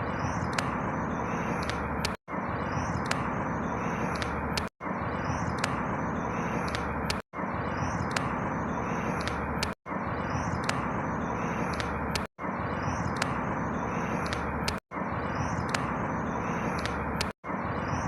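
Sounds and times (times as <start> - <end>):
faint bird chirps: 0.0 - 18.0
outdoor background noise: 0.0 - 18.0
small ticks: 1.5 - 2.2, 4.1 - 4.7, 5.5 - 5.8, 6.6 - 7.2, 9.1 - 9.8, 10.5 - 10.8, 11.6 - 12.3, 14.2 - 14.8, 16.7 - 17.4.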